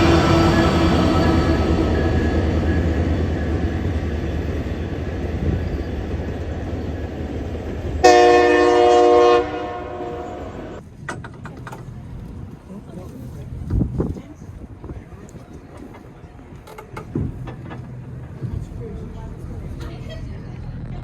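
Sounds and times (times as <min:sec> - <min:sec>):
train rumbling past: 0:00.0 - 0:21.0
train horn blast: 0:08.0 - 0:10.8.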